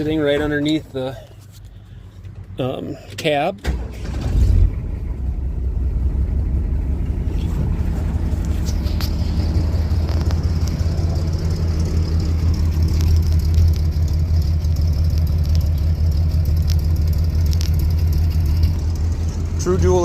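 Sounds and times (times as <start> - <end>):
engine idling exhaust rumble: 0.0 - 20.0.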